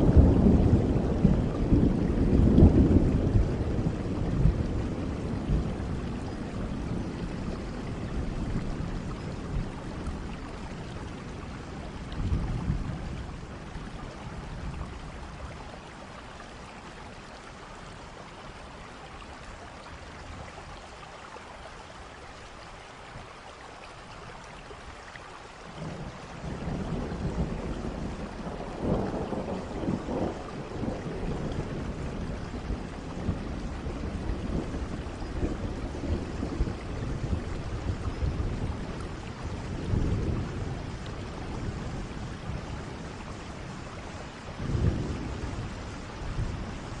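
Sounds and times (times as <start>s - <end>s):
rolling thunder: 0.0s - 15.8s, 25.7s - 47.0s
steady rainfall: 0.0s - 47.0s.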